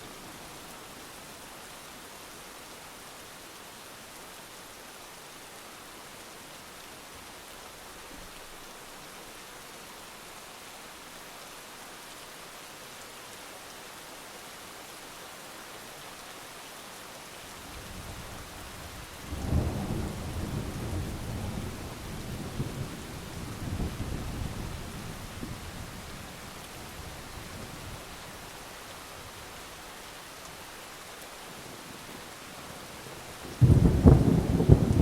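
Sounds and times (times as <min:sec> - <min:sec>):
heavy rain hissing: 0:17.4 - 0:35.0
rolling thunder: 0:33.6 - 0:35.0.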